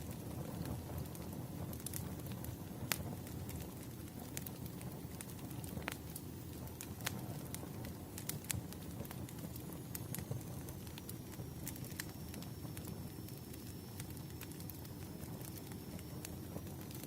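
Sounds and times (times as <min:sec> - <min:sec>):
faint high whine: 0:00.0 - 0:17.0
fire rumbling: 0:00.0 - 0:17.0
logs crackling and popping: 0:00.0 - 0:17.0.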